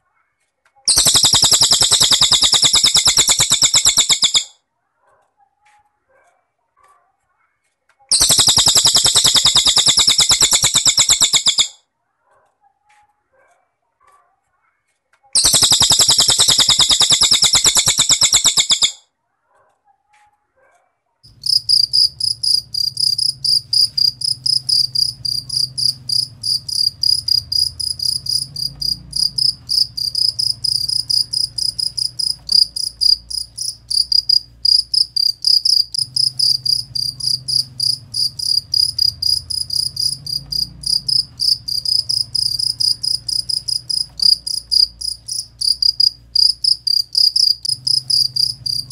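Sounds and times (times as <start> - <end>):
bird buzzy high trill: 0.9 - 4.5, 8.1 - 11.7, 15.4 - 19.0, 21.3 - 48.9
cricket chirping: 0.9 - 4.5, 8.1 - 11.7, 15.4 - 19.0, 21.3 - 48.9.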